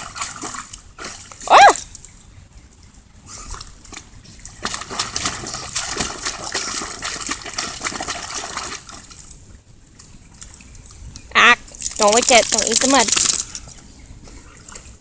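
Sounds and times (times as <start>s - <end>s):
dog splashing in muddy puddle: 0.0s - 1.8s, 3.3s - 9.4s, 11.6s - 13.8s.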